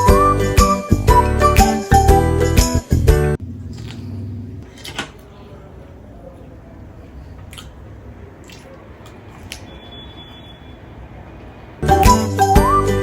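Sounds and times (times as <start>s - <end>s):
wet chewing of food: 7.1s - 10.2s.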